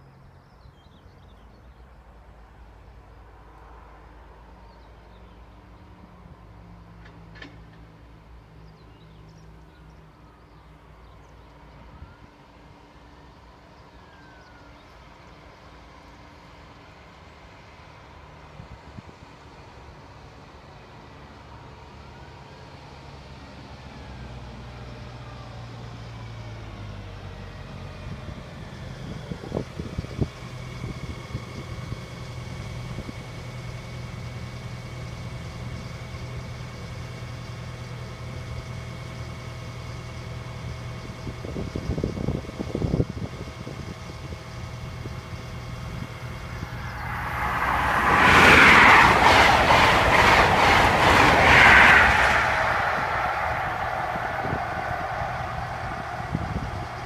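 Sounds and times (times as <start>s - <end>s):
diesel train engine hum: 0.0s - 57.0s
train wheels rattling on rails: 46.6s - 57.0s.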